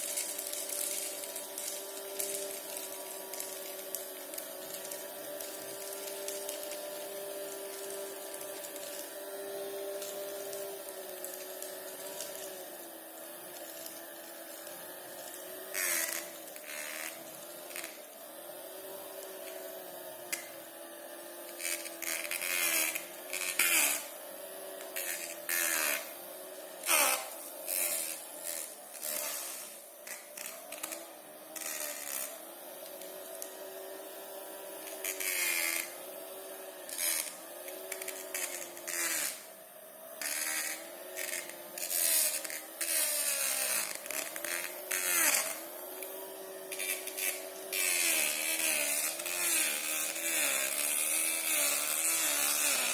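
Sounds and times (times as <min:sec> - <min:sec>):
nozzle scratching over dust: 0:00.0 - 0:20.6, 0:24.8 - 0:32.4
small vacuum cleaner motor humming: 0:00.0 - 0:52.9.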